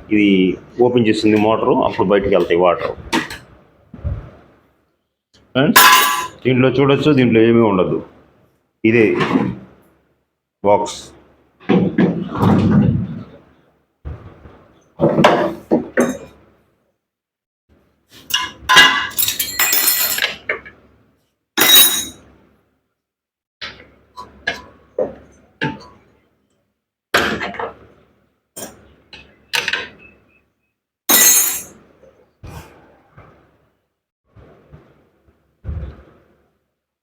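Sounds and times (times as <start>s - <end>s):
metal tools clinking and scraping: 5.8s - 6.4s, 18.2s - 20.5s, 21.6s - 22.2s, 31.1s - 31.8s.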